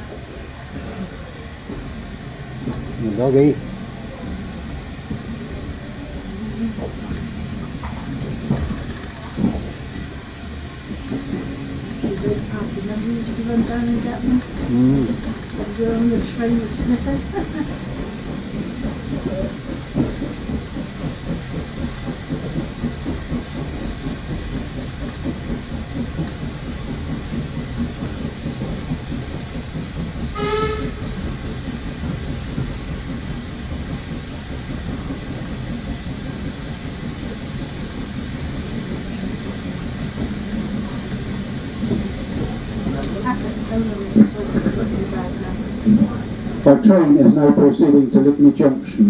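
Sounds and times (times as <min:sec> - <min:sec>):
wheels clattering over rail joints: 0:06.2 - 0:48.0
locomotive toot: 0:30.3 - 0:31.2.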